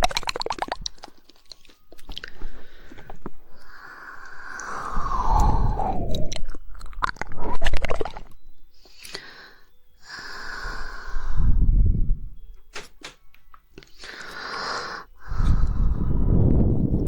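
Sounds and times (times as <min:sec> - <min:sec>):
wet mouth sound falling in pitch: 0:00.0 - 0:01.0, 0:04.6 - 0:08.3
wet tongue clicks: 0:00.0 - 0:02.4, 0:03.6 - 0:09.3.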